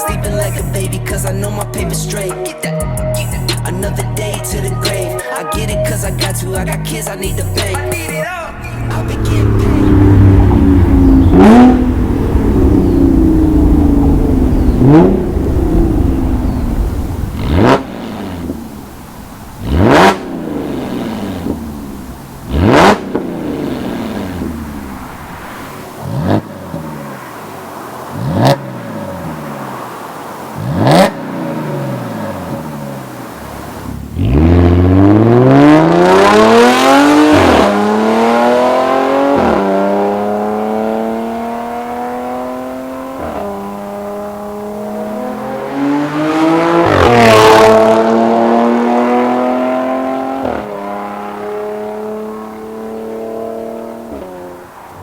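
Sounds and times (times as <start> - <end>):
car accelerating hard: 7.2 - 55.0
car throttle blips: 7.3 - 26.4.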